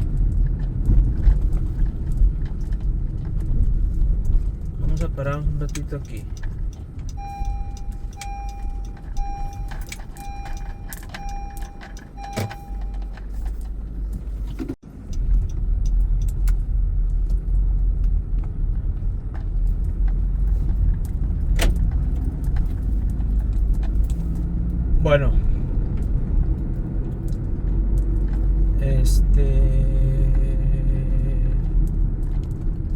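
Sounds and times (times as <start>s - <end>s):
engine and road rumble: 0.0s - 32.9s
car warning chime beeps: 7.1s - 13.4s.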